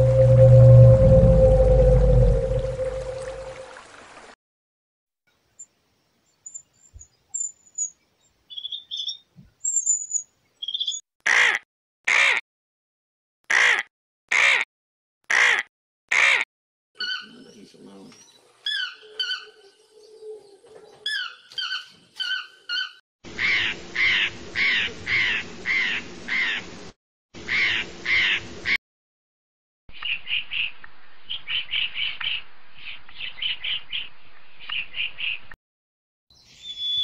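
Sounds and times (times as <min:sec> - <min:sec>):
blue jay harsh calls: 0:15.3 - 0:16.4, 0:21.1 - 0:26.6, 0:27.5 - 0:28.4
toucan yelping calls: 0:17.0 - 0:17.3, 0:18.7 - 0:19.6, 0:36.6 - 0:37.0.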